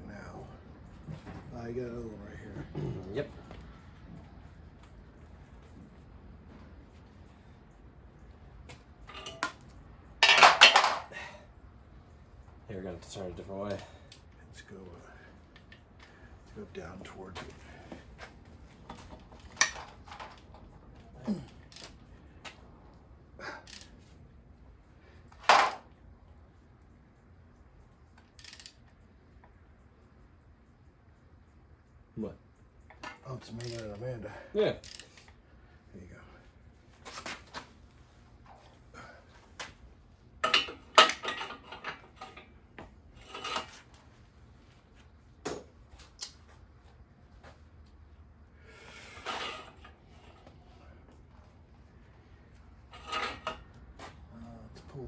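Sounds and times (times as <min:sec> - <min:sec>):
metal tools clinking and knocking: 0:09.0 - 0:09.6, 0:10.2 - 0:11.2, 0:18.8 - 0:20.7, 0:25.4 - 0:25.8, 0:40.4 - 0:42.5, 0:43.2 - 0:43.8, 0:52.8 - 0:53.8.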